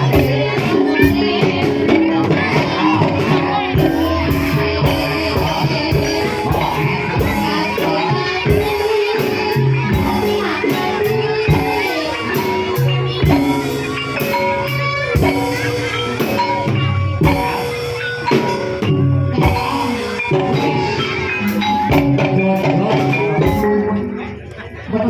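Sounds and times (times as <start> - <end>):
struck mallet percussion: 0.0 - 24.9.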